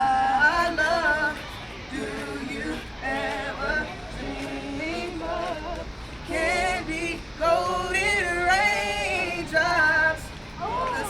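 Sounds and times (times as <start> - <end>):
vocal group singing a cappella: 0.0 - 11.0.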